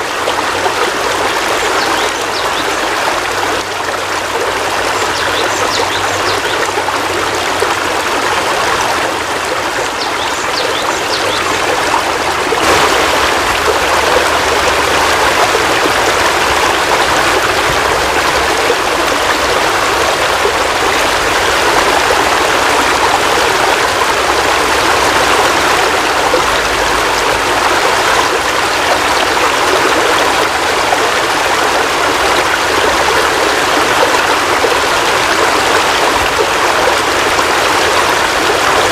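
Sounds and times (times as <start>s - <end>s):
heavy rain hissing: 12.2s - 27.6s.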